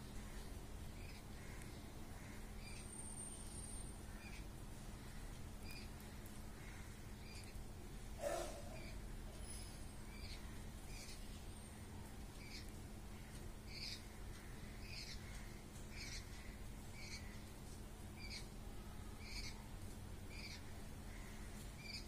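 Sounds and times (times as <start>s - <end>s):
bird calling: 8.2s - 11.2s.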